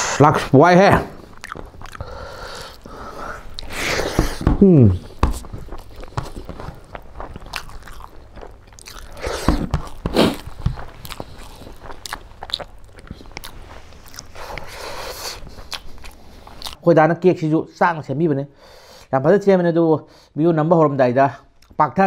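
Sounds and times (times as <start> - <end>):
person chewing food: 1.1 - 16.8
wet mouth clicks and smacks: 1.4 - 2.9.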